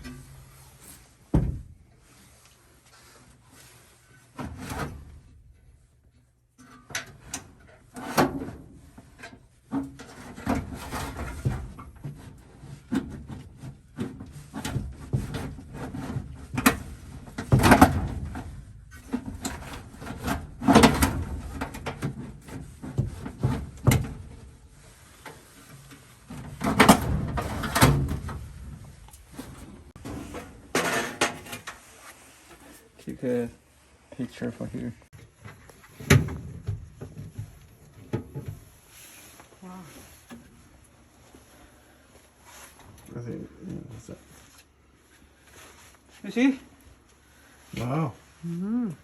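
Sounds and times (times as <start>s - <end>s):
objects knocking and scraping: 6.6s - 33.0s, 35.2s - 39.4s.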